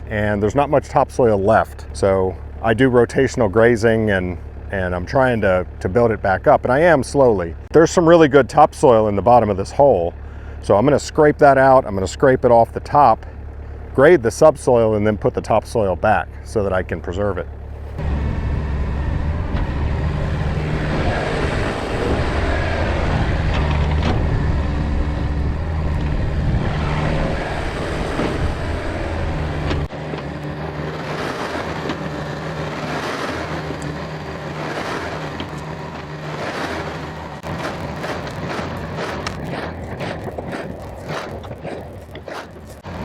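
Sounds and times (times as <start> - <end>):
excavator diesel engine: 0.0 - 43.0
bucket scraping soil: 29.5 - 43.0.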